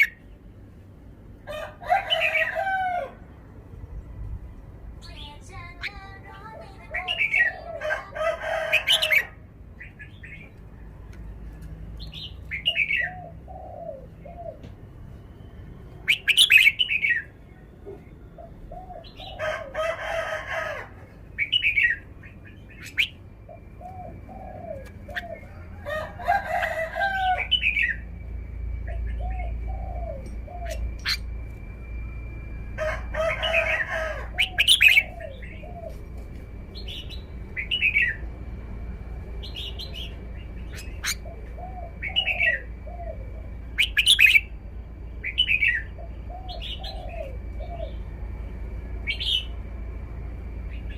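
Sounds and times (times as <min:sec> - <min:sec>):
bulbul singing bright phrases: 0:04.9 - 0:10.6, 0:15.4 - 0:19.4, 0:27.4 - 0:32.1, 0:36.8 - 0:48.1
low arching bird call: 0:15.4 - 0:36.1, 0:39.3 - 0:48.4.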